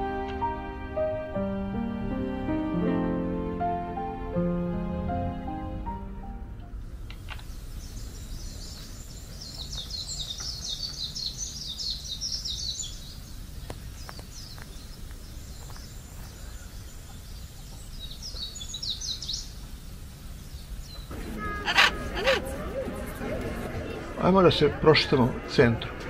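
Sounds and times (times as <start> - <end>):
songbirds chirping and twittering: 6.7 - 26.0.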